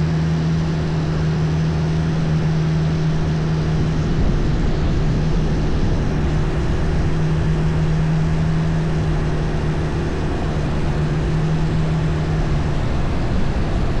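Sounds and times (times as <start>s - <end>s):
boat engine droning: 0.0s - 14.0s
water rushing: 0.0s - 14.0s.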